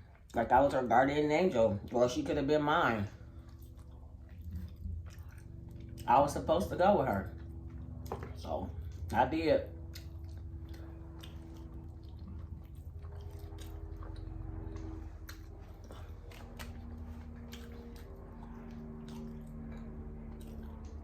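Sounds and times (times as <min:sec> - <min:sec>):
person chewing food: 0:00.0 - 0:00.4, 0:02.9 - 0:21.0
steady low hum: 0:00.0 - 0:21.0
wet mouth clicks and smacks: 0:09.8 - 0:21.0.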